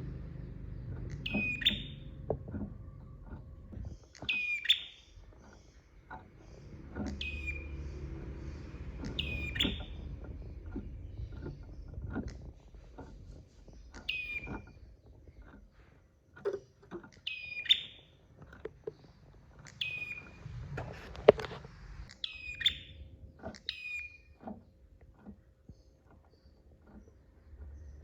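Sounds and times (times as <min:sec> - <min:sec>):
bird calling: 0:00.0 - 0:15.9, 0:17.1 - 0:21.1, 0:22.0 - 0:24.7
clicks and knocks: 0:00.0 - 0:21.7.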